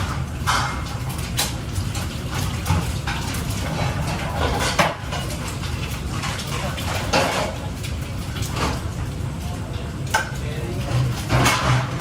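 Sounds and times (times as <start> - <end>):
kitchen clinks and scrapes: 10.9 - 12.0.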